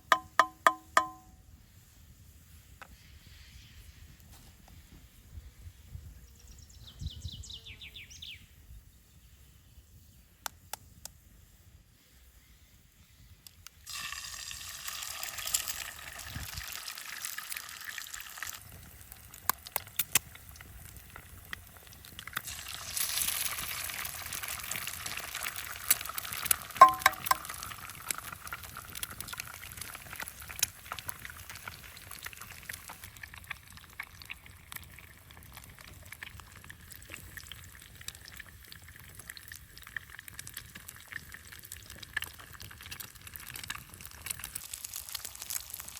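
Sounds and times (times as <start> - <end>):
liquid pouring with a hiss: 11.6 - 45.9.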